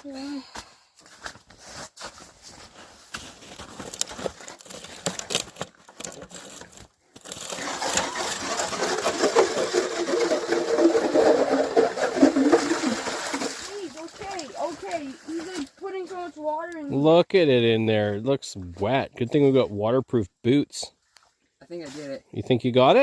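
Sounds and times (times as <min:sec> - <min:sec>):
electric ice auger drilling: 0:07.2 - 0:13.6.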